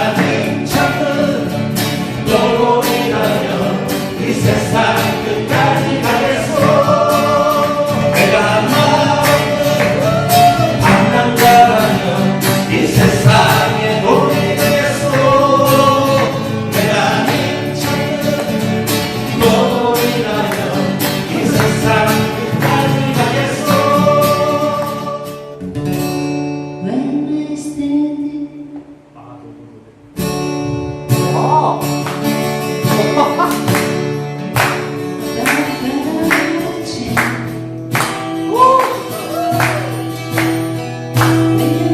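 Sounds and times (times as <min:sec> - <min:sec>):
group singing: 0:00.0 - 0:25.6, 0:34.6 - 0:40.6, 0:41.2 - 0:41.9
acoustic guitars strummed: 0:00.0 - 0:29.1, 0:29.9 - 0:41.9.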